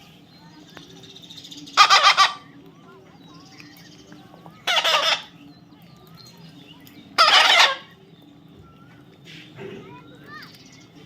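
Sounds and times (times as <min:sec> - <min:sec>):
parrot squawking: 0:01.8 - 0:02.5, 0:04.6 - 0:05.3, 0:07.2 - 0:08.0.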